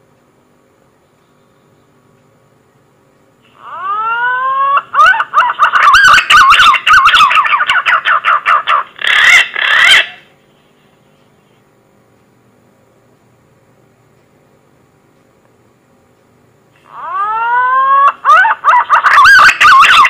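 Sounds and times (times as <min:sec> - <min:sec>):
faint hiss and hum: 0:00.0 - 0:20.0
bird lure call whistling: 0:03.6 - 0:08.2.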